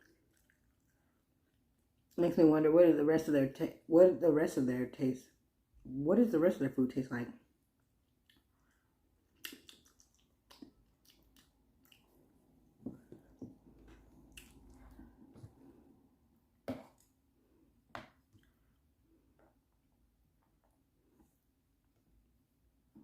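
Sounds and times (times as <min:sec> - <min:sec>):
person chewing noodles: 0:00.0 - 0:02.2, 0:07.8 - 0:15.8.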